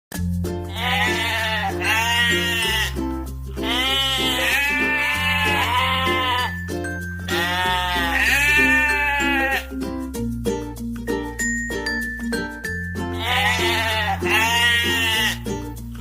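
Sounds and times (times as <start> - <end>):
background music with bass line: 0.1 - 16.0
sheep or goat bleating: 0.7 - 6.6, 7.2 - 9.8, 13.1 - 15.5.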